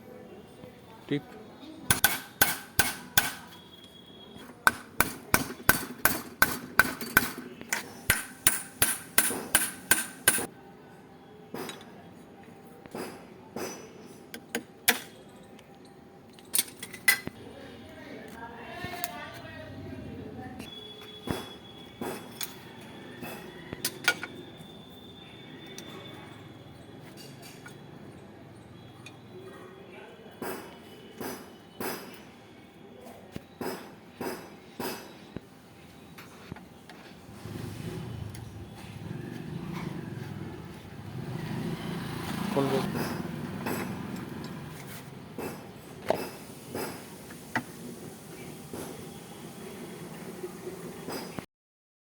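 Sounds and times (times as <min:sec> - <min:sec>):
faint steady high tone: 0:03.4 - 0:04.6, 0:20.6 - 0:31.8
metal parts clinking: 0:16.3 - 0:17.3.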